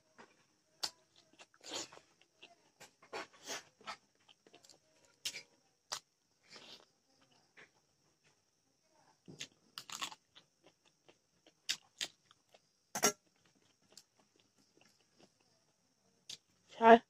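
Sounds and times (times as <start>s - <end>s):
chewing and lip-smacking: 0.8s - 2.5s, 9.4s - 12.6s, 13.3s - 15.5s.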